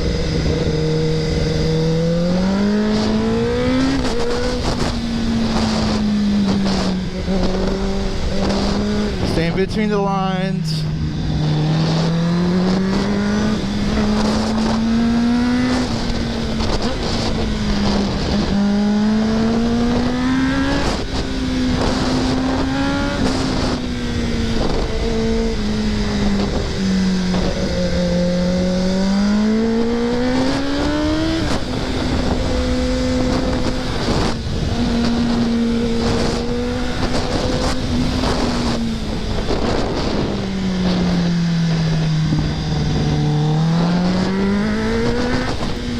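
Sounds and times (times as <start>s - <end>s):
motorcycle engine revving: 0.0s - 45.9s
wind on microphone: 0.0s - 45.9s.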